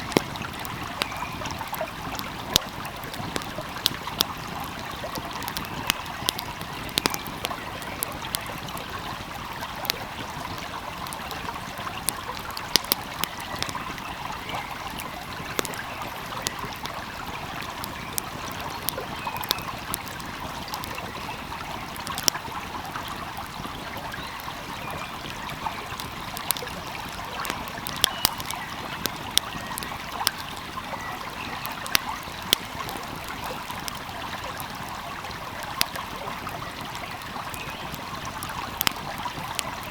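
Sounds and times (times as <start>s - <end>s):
flowing stream: 0.0s - 39.9s
wood fire crackling: 0.0s - 39.9s.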